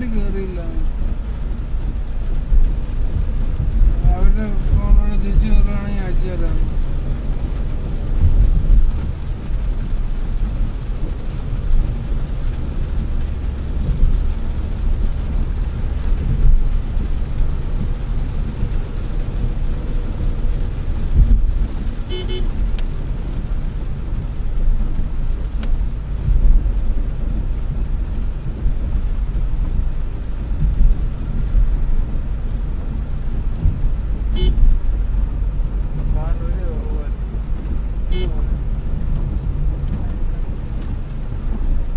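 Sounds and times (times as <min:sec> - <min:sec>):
car driving on wet road: 0:00.0 - 0:41.9.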